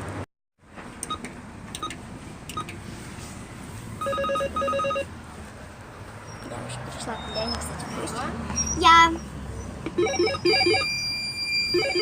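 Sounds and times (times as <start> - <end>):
keypad beeps: 1.8 - 2.7, 10.0 - 12.0
intercom call tone pulsing beeps: 10.0 - 12.0.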